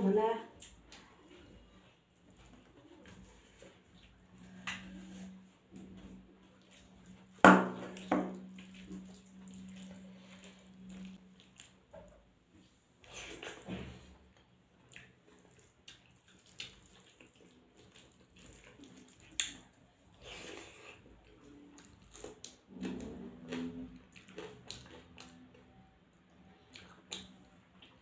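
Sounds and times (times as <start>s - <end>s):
wet chewing and lip-smacking: 0.5s - 13.6s, 14.3s - 28.0s.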